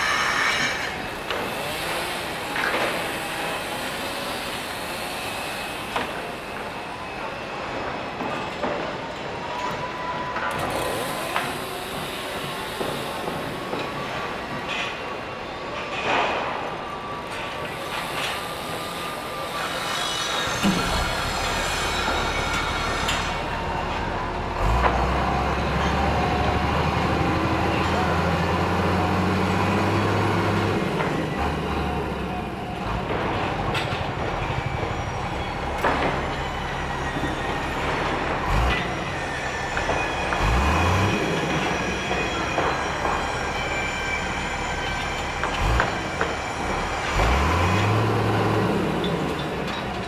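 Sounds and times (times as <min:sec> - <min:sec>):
heavy machinery engine running: 0:00.0 - 0:50.0
metallic squeals: 0:18.0 - 0:30.8, 0:33.3 - 0:50.0.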